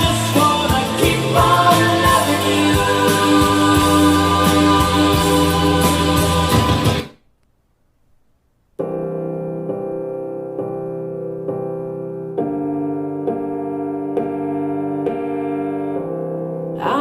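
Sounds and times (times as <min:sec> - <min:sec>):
band song with singing: 0:00.0 - 0:07.1
piano chords: 0:00.0 - 0:07.1, 0:08.8 - 0:17.0.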